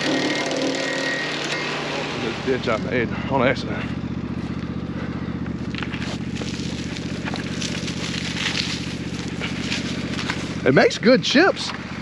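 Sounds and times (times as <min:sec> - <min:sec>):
wood chipper engine running: 0:00.0 - 0:12.0
branches crackling and crunching: 0:03.7 - 0:12.0.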